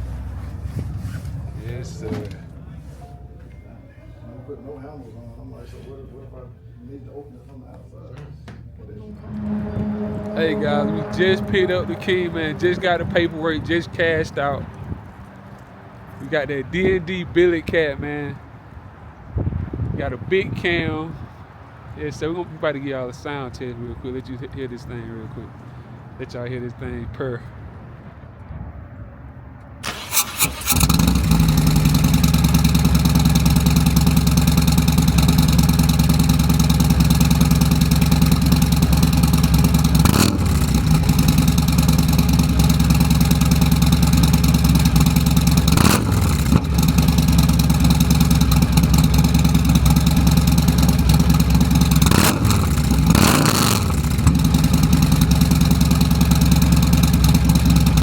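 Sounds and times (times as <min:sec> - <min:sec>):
motorcycle engine starting: 0:00.0 - 0:03.6, 0:08.9 - 0:16.9, 0:29.8 - 0:58.0
motorcycle engine revving: 0:08.9 - 0:17.0, 0:29.9 - 0:58.0
motorcycle engine idling loudly: 0:30.7 - 0:58.0.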